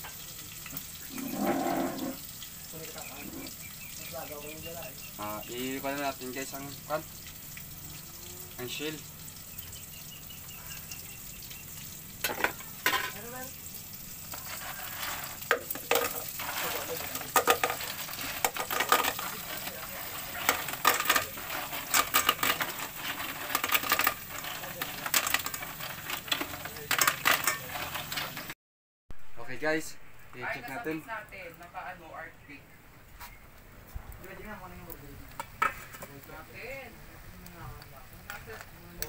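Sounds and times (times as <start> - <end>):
sizzling: 0.0 - 39.0
shells clattering in metal pot: 12.1 - 13.5, 14.3 - 28.5.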